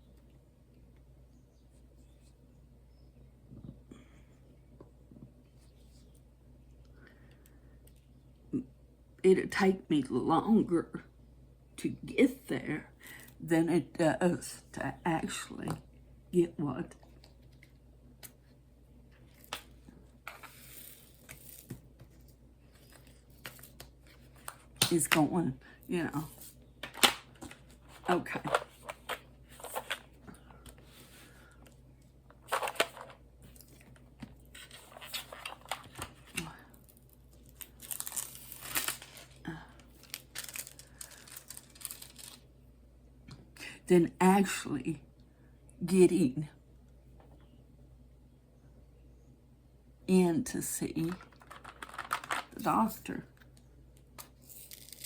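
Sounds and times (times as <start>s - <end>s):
plastic crinkling: 34.6s - 42.4s.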